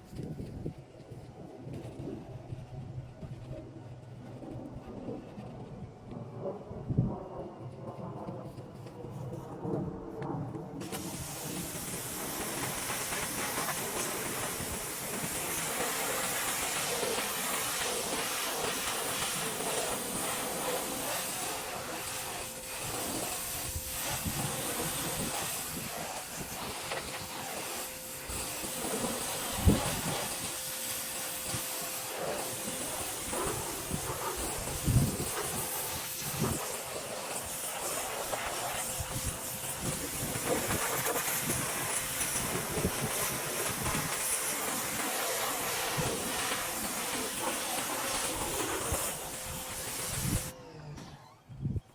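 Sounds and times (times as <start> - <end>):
pressure washer spraying water: 10.8 - 50.6.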